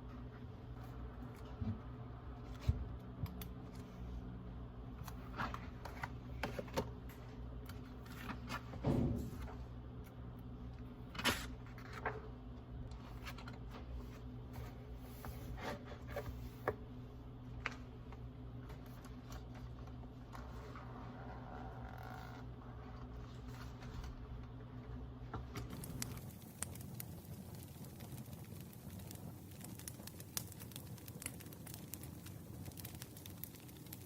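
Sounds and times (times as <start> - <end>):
fire snaps and pops: 25.4 - 34.0
campfire crackling: 25.6 - 34.0.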